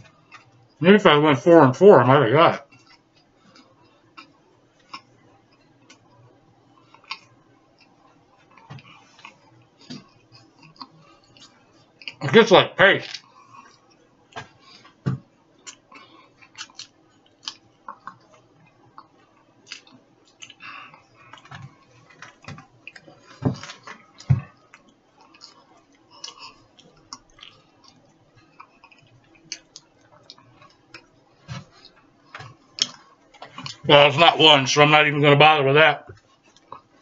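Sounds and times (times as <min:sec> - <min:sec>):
chewing crackers: 0:00.0 - 0:00.8, 0:02.7 - 0:12.3, 0:13.0 - 0:15.0, 0:15.6 - 0:33.8, 0:36.2 - 0:37.0
wet mouth clicks and smacks: 0:16.4 - 0:18.3, 0:19.0 - 0:20.6.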